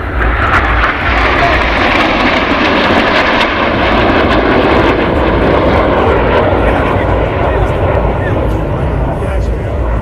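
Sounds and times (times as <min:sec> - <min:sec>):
jet engines rushing: 0:00.0 - 0:10.0.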